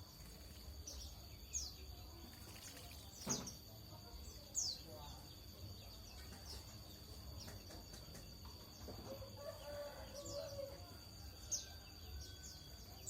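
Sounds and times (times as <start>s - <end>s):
small bird chirping: 0.0s - 13.0s
rooster crowing: 9.0s - 12.7s.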